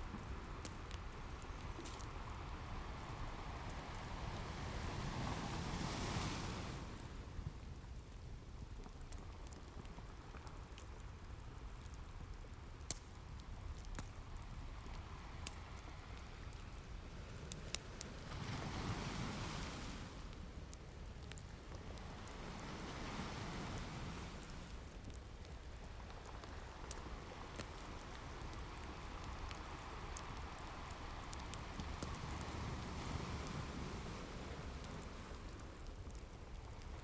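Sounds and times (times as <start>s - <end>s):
wood fire crackling: 0.0s - 37.0s
ocean waves washing in: 2.6s - 7.3s, 18.1s - 20.6s, 21.8s - 24.9s, 29.6s - 35.8s.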